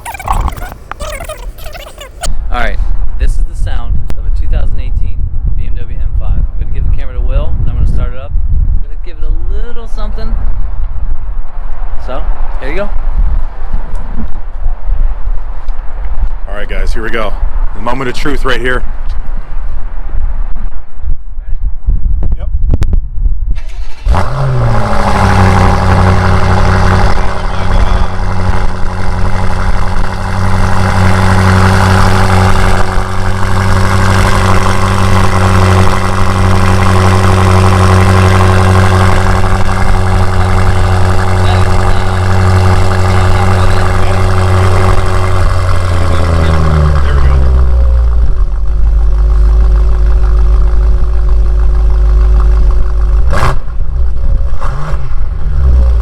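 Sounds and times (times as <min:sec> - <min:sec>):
car engine idling: 0:24.6 - 0:56.0.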